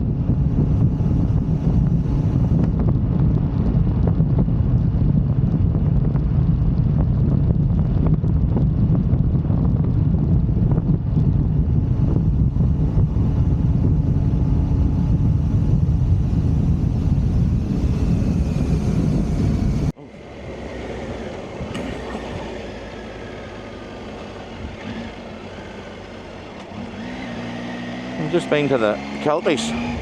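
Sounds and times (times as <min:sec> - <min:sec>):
motorcycle engine rumble: 0:00.0 - 0:30.0
wind buffeting: 0:00.0 - 0:30.0.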